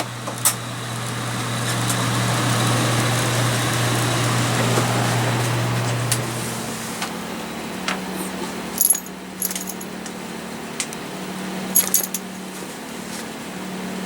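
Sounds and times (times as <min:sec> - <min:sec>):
generators humming: 0:00.0 - 0:12.3
metallic clinks and jingles: 0:08.8 - 0:09.9, 0:11.8 - 0:12.3.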